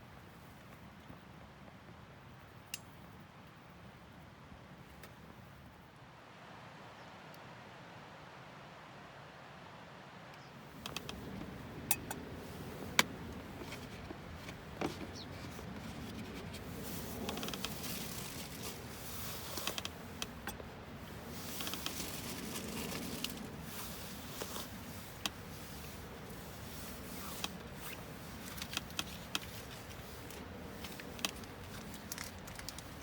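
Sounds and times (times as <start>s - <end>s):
rustling and scraping handling noise: 10.7s - 33.0s.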